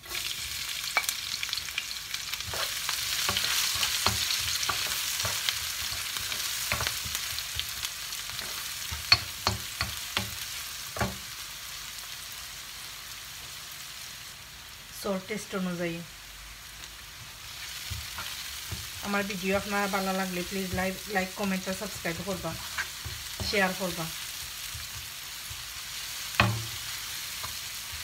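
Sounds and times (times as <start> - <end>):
garlic and onion sizzling in oil: 0.0 - 28.0
wooden spoon scraping pan: 2.4 - 7.1, 21.9 - 23.8.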